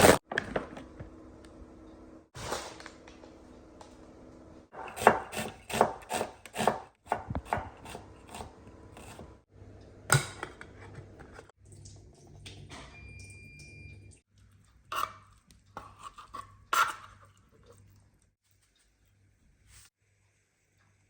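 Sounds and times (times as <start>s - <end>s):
knife chopping on cutting board: 4.8s - 9.2s.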